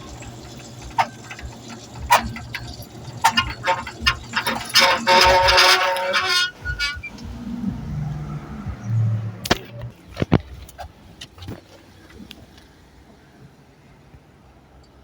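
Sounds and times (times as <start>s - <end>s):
gate opener motor hum: 0.0s - 7.1s
quiet mechanism running: 0.0s - 7.9s.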